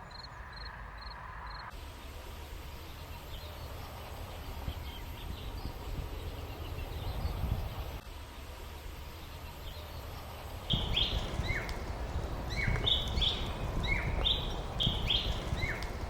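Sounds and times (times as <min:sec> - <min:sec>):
birds chirping: 0:00.0 - 0:16.0
steady hiss and low rumble: 0:01.7 - 0:16.0.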